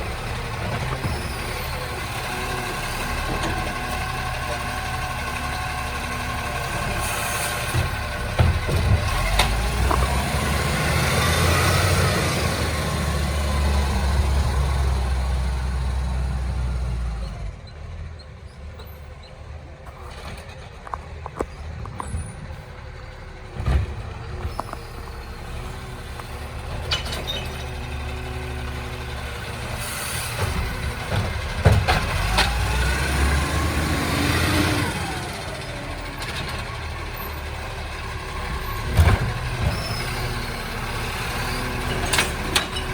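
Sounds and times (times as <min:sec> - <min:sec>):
garbage truck diesel engine revving: 0:00.0 - 0:42.9
clatter and knocks: 0:30.4 - 0:32.6.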